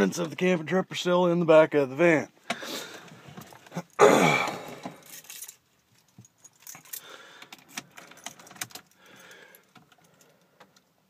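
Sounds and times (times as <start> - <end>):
keys jingling: 4.7 - 10.4.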